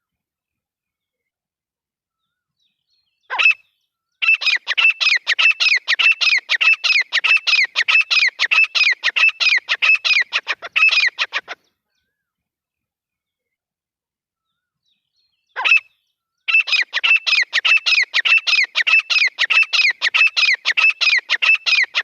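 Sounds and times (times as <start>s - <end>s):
francolin calling: 3.3s - 11.6s, 16.5s - 22.0s.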